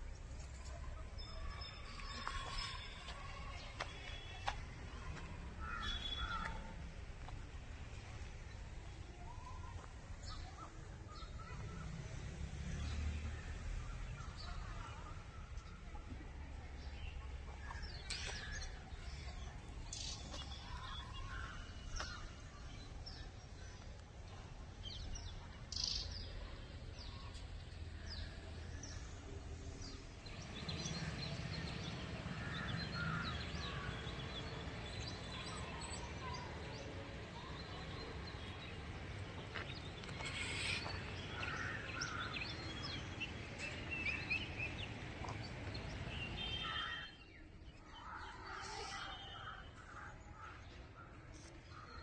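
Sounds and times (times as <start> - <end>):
birds chirping: 29.8 - 52.0.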